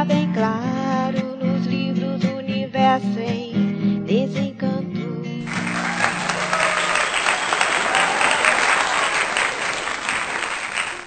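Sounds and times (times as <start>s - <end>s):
audience applause: 5.4s - 11.0s.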